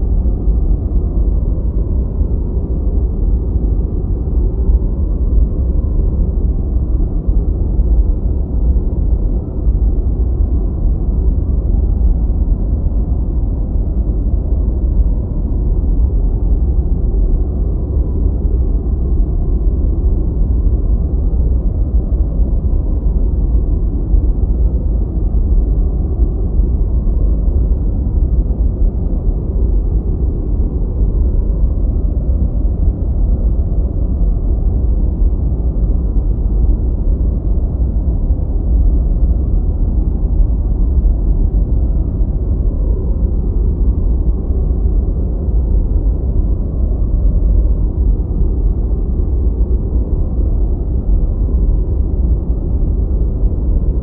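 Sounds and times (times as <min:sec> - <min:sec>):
deep white noise: 0:00.0 - 0:54.0.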